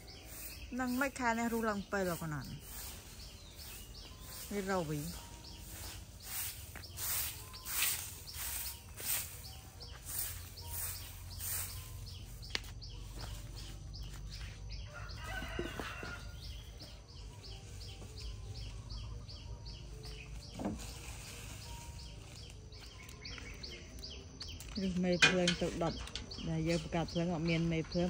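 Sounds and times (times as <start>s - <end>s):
small bird chirping: 0.0s - 20.6s.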